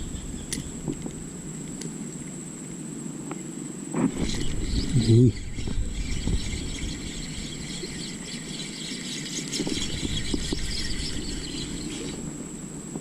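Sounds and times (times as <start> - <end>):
fishing reel whirring: 4.1 - 12.4.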